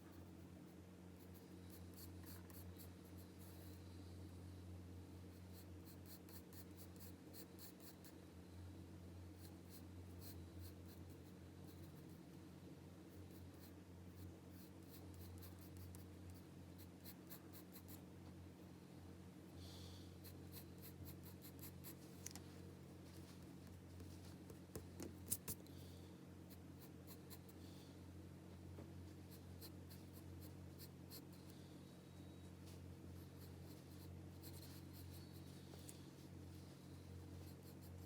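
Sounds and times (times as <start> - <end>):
pencil scratching on paper: 0.0 - 3.8, 13.1 - 18.0, 20.2 - 22.0, 33.2 - 35.6, 37.3 - 38.0
steady low hum: 0.0 - 38.0.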